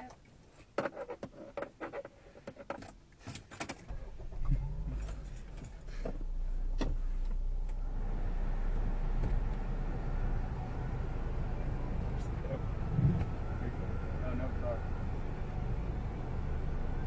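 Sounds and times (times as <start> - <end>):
car keys jangling: 2.7 - 4.0, 5.0 - 6.0
car engine starting and idling: 3.3 - 17.0.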